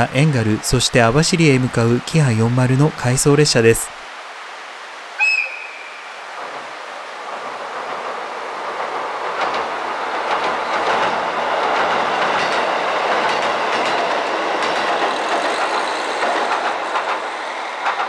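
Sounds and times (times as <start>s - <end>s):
train wheels rumbling on bridge: 6.3s - 18.0s.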